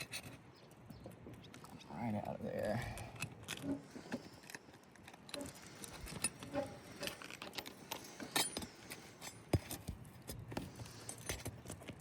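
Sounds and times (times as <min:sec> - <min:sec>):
bar scraping under shingles: 0:03.4 - 0:09.9.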